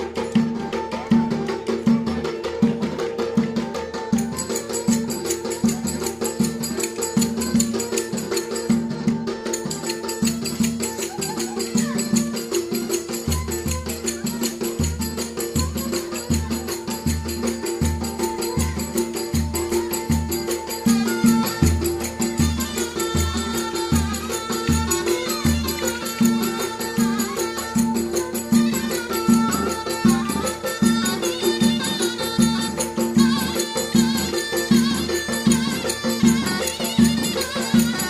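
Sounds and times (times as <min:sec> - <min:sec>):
folk dance music: 0:00.0 - 0:38.0
steady drum rhythm: 0:00.0 - 0:38.0.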